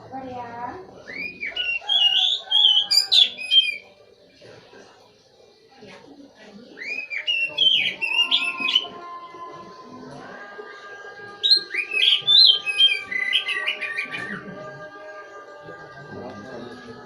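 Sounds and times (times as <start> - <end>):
bird singing whistled phrases: 1.0 - 3.9, 6.8 - 8.9, 11.4 - 14.4.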